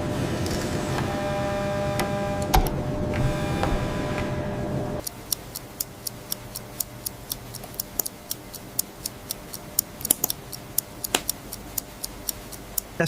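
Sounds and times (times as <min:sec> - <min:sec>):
machine humming: 0:00.0 - 0:13.0
watch ticking: 0:05.0 - 0:13.0.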